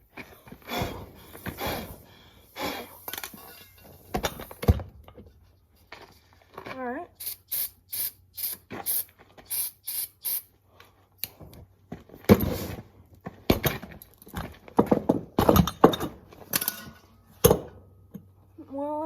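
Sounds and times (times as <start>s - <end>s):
aerosol can hissing sprays: 7.2s - 10.5s.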